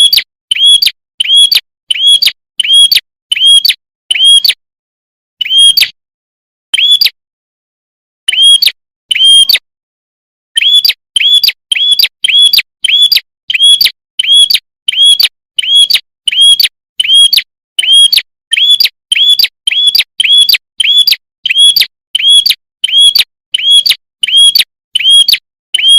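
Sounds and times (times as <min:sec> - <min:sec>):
bird call repeated: 0:10.6 - 0:25.9.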